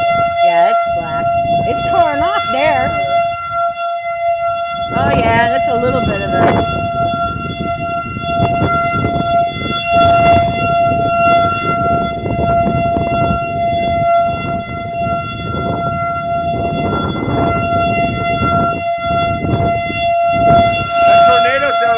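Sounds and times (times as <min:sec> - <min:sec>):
tornado warning siren: 0:00.0 - 0:21.9
wind rumble on microphone: 0:04.4 - 0:21.7.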